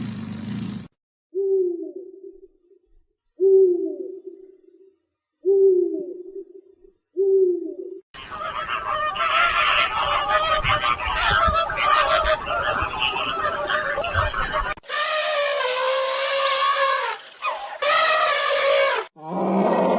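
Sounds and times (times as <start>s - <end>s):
chorus of overlapping bird calls: 8.2s - 14.8s, 16.2s - 19.1s.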